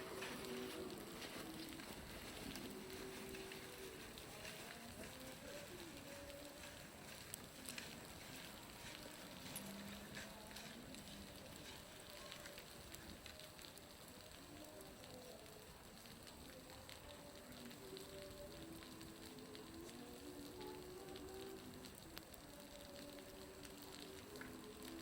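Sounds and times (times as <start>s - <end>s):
water falling from a roof: 0.0s - 25.0s.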